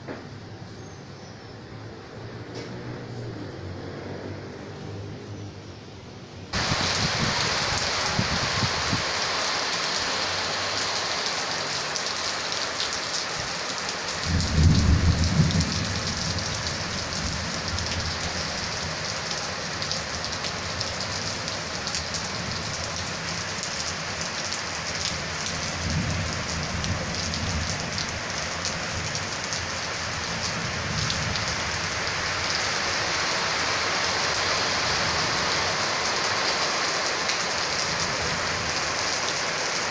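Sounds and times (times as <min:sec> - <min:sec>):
heavy rain pouring: 0:06.5 - 0:39.9
low thunder rumbles: 0:14.2 - 0:19.0.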